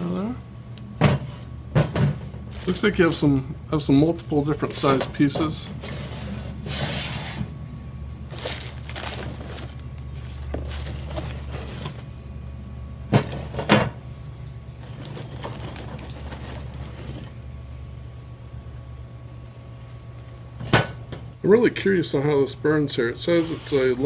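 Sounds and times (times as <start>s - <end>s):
steady low hum: 0.0s - 24.0s
charcoal pieces being handled: 2.5s - 3.4s, 8.3s - 12.1s, 14.8s - 17.4s.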